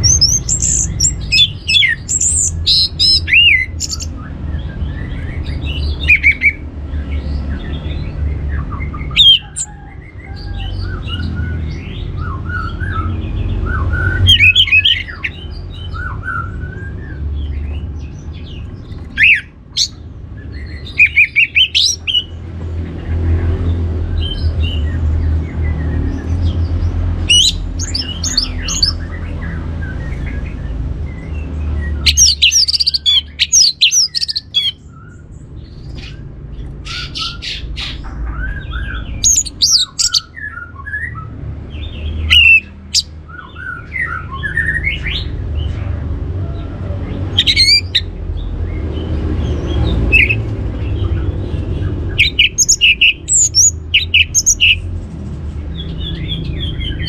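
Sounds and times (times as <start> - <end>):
thrush singing: 8.8 - 9.7, 20.6 - 22.4, 26.3 - 29.4, 31.7 - 34.8, 47.2 - 48.2, 49.7 - 54.9.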